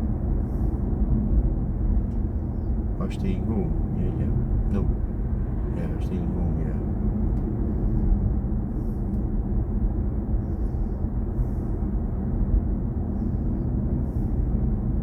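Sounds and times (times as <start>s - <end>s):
road and tyre rumble in car: 0.0s - 15.0s.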